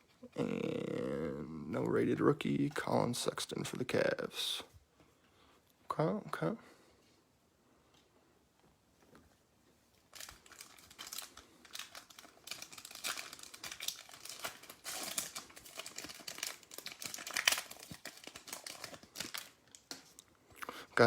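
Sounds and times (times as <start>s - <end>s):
foil wrapper tearing and crinkling: 10.1s - 20.2s.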